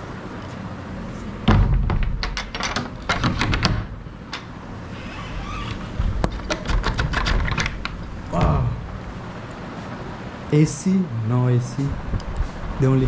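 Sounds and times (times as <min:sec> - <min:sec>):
steady low hum: 0:00.0 - 0:13.0
sharp clicks and knocks: 0:01.5 - 0:04.6, 0:06.2 - 0:08.1.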